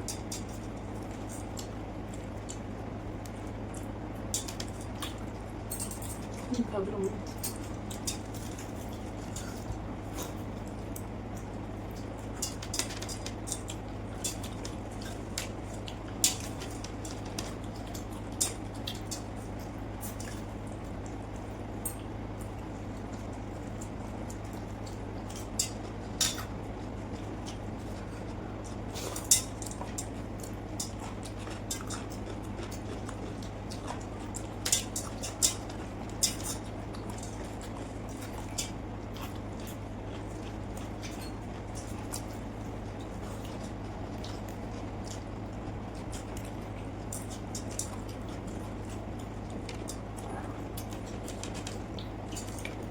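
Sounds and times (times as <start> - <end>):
steady low hum: 0.0 - 52.9
wet squishy chewing: 6.2 - 52.9.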